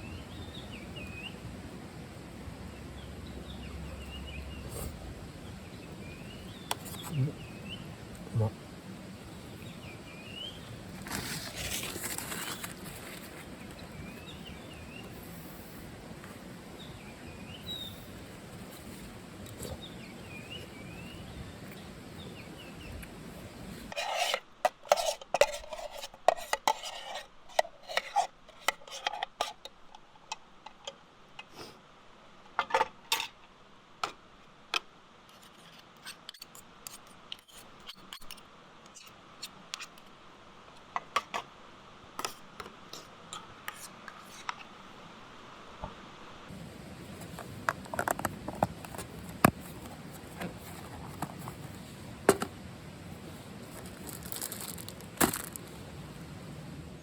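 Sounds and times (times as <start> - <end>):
birds chirping: 0.0 - 1.5, 2.6 - 23.9
outdoor background noise: 0.0 - 57.0
spoon scraping metal tin: 23.9 - 29.6.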